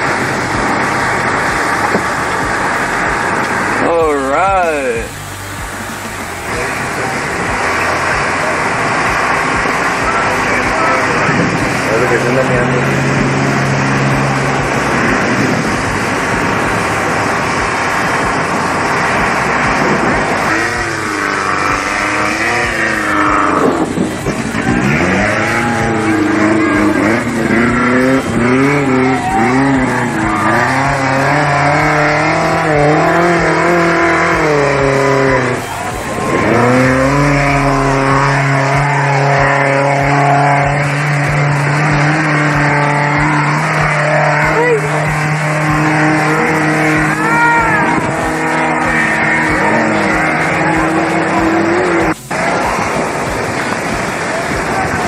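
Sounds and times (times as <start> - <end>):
race vehicle engine revving: 0.0 - 55.0.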